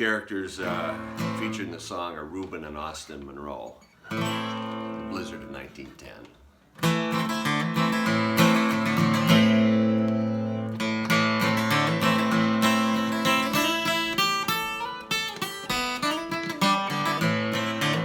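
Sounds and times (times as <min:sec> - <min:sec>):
guitar picked single notes: 0:00.6 - 0:01.8, 0:06.8 - 0:18.0
acoustic guitar strumming chords: 0:00.6 - 0:02.1, 0:04.1 - 0:05.8, 0:06.8 - 0:18.0.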